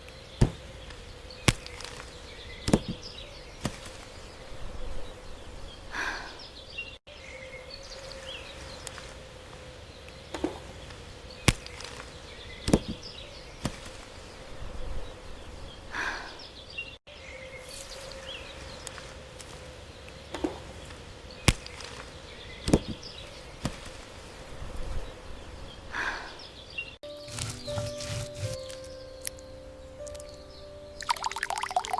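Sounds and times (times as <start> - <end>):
bird chirps: 24.9 - 31.9.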